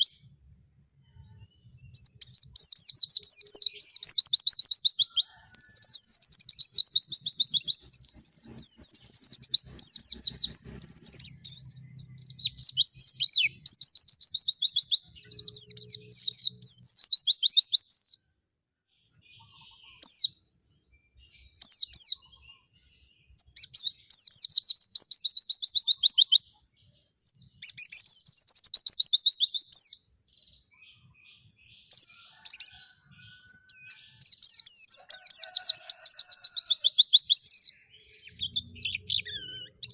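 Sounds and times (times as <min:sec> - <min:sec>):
bird twittering: 0:00.0 - 0:00.3, 0:01.3 - 0:18.2, 0:27.5 - 0:39.9.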